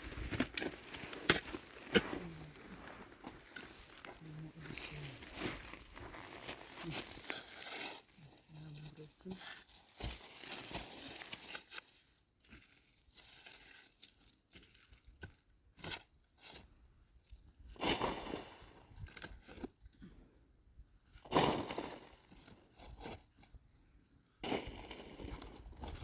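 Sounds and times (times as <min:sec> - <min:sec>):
crunching and rustling: 0:00.0 - 0:15.2.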